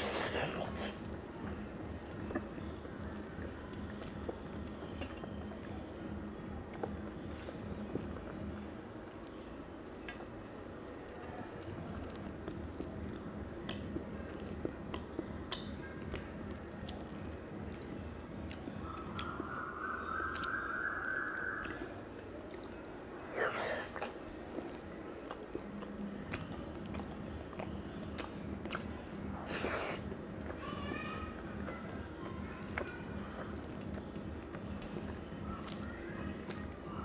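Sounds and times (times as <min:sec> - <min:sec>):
person chewing: 0:00.0 - 0:05.7, 0:11.5 - 0:30.6
wet mouth clicks and smacks: 0:16.8 - 0:21.8.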